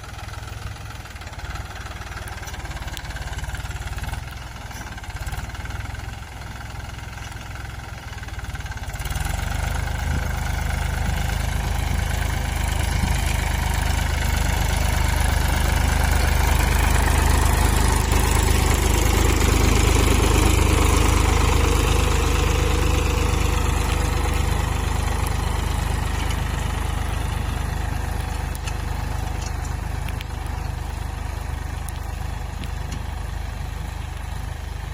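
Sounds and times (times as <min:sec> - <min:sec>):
tractor engine rumbling: 0:00.0 - 0:34.9.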